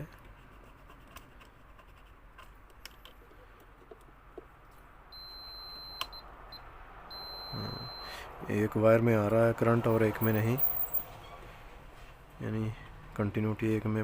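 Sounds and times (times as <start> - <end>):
continuity meter beeping: 5.2 - 8.2.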